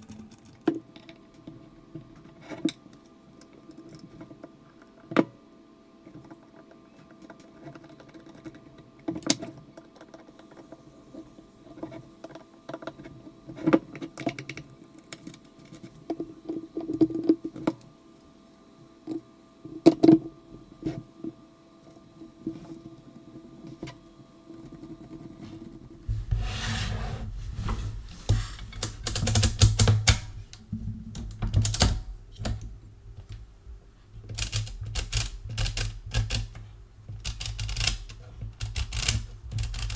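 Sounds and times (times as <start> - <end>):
mechanical calculator clicking: 28.8 - 30.6, 34.3 - 36.6, 37.2 - 39.9.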